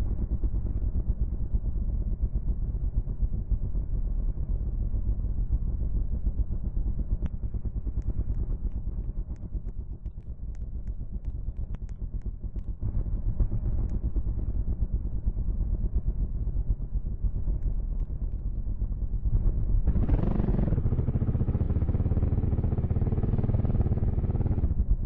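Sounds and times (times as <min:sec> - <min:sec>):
faint clicks: 0:08.0 - 0:12.8
dirt bike engine running: 0:17.8 - 0:24.9.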